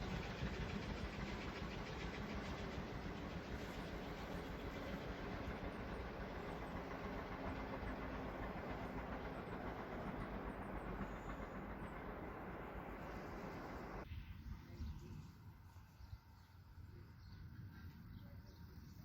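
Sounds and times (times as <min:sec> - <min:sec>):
train wheels rumbling on rails: 0:00.0 - 0:14.1.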